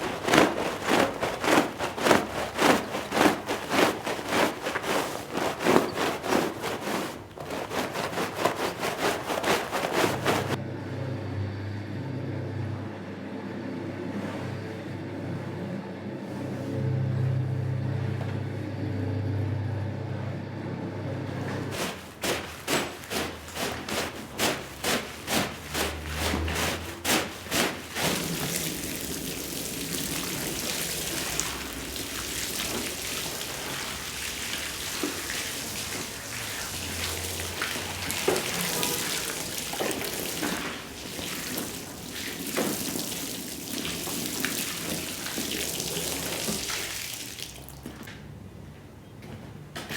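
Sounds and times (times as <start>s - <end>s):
rhythmic swishing strokes: 0.0s - 10.6s
water spraying onto rug: 0.0s - 10.6s, 21.7s - 48.0s
low machine hum: 9.7s - 21.8s.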